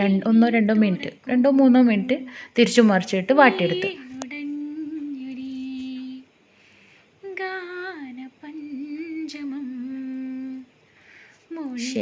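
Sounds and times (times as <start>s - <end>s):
woman humming: 11.5s - 12.0s.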